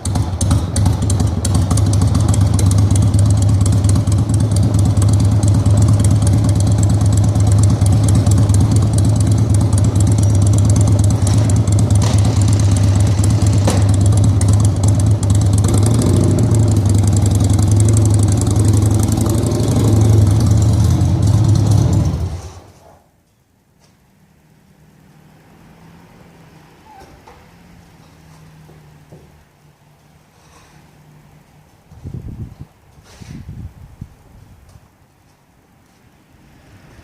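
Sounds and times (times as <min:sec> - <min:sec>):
vehicle engine idling: 0:00.0 - 0:22.8.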